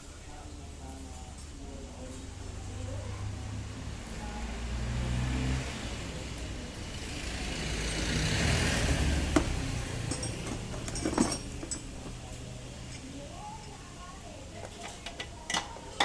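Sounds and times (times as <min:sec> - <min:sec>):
vehicle engine passing by: 0:02.3 - 0:12.9.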